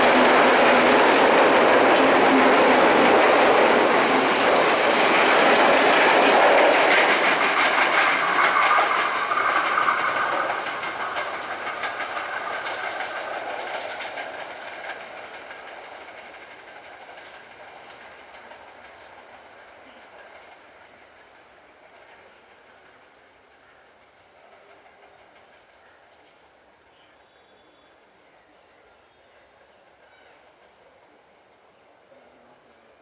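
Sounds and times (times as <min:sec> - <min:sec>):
train clattering over rail joints: 0:00.0 - 0:26.7.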